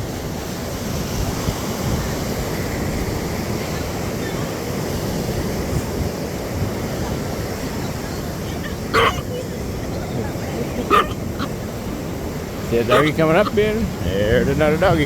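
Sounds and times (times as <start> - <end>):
ocean surf on sandy beach: 0.0 - 15.0
wind buffeting microphone: 0.0 - 15.0.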